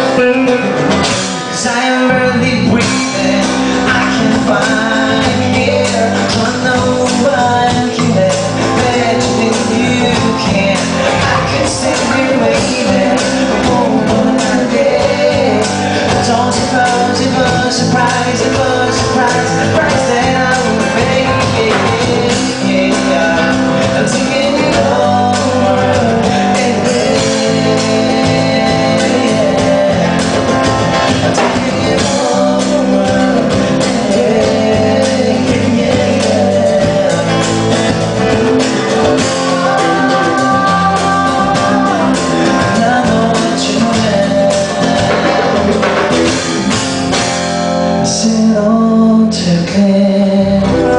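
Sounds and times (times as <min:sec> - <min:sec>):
guitar: 0:00.0 - 0:50.9
live rock band playing: 0:00.0 - 0:50.9.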